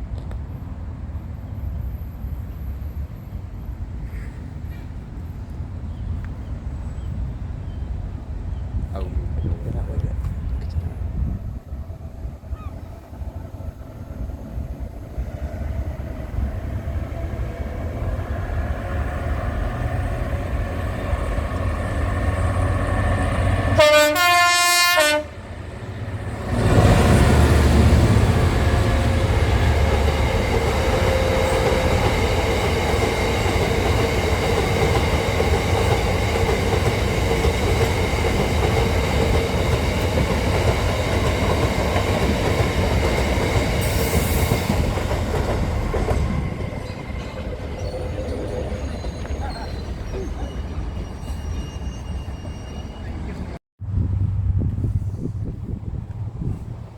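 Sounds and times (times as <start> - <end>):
train rumbling: 0.0 - 56.9
train horn: 22.4 - 32.1.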